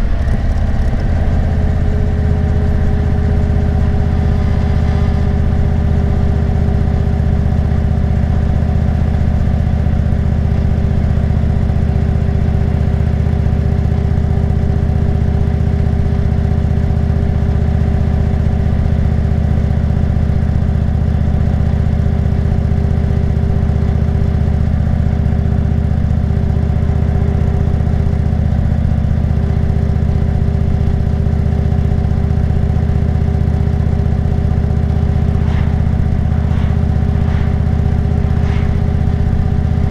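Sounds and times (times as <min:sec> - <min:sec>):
motorcycle engine cruising: 0:00.0 - 0:08.3
steady whine: 0:00.0 - 0:10.1, 0:33.4 - 0:39.9.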